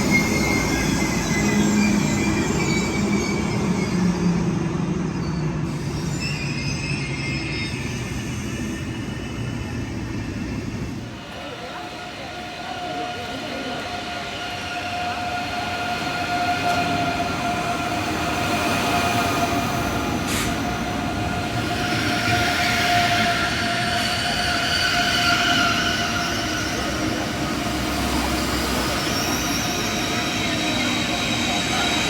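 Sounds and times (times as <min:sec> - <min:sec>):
rail noise: 0:00.0 - 0:32.0
electric train whining: 0:12.2 - 0:32.0.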